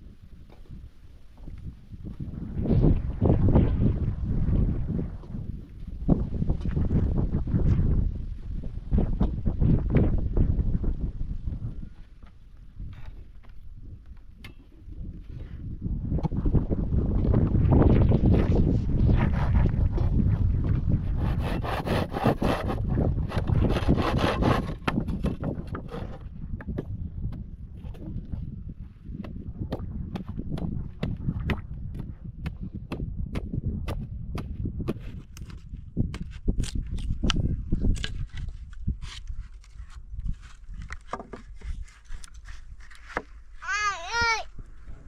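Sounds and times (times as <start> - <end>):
hand saw rasping through wood: 21.2 - 26.2.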